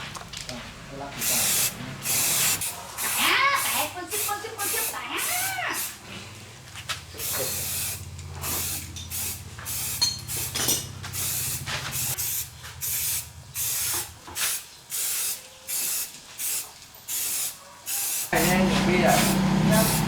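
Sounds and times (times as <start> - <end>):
spray nozzle hissing: 1.2 - 6.0, 7.2 - 20.0.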